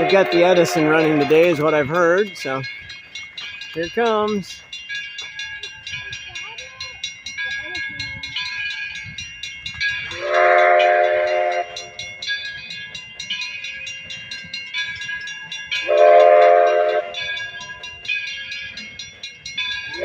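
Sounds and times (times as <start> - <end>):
steam locomotive whistle: 0.0 - 1.4, 10.1 - 12.0, 15.8 - 17.2
moving train ticking: 0.0 - 20.0.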